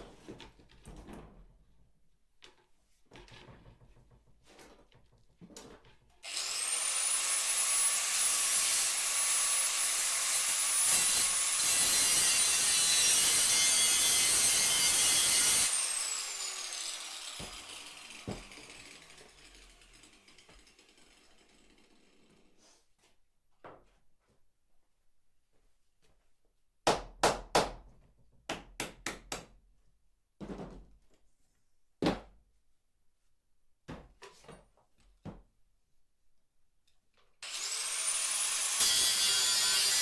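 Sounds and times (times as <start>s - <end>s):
power tool whining on metal: 6.2s - 20.9s, 37.4s - 40.0s.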